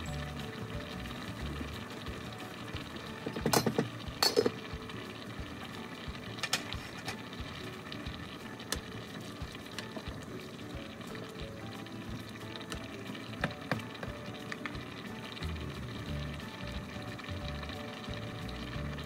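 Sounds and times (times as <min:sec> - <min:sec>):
pot of rice boiling: 0:00.0 - 0:19.0
pot lid clattering on pot: 0:03.2 - 0:04.6, 0:06.4 - 0:07.2.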